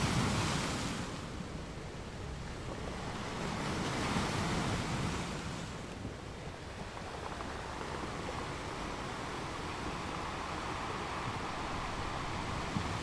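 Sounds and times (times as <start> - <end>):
ocean surf washing ashore: 0.0 - 13.0
wind on microphone: 2.2 - 13.0.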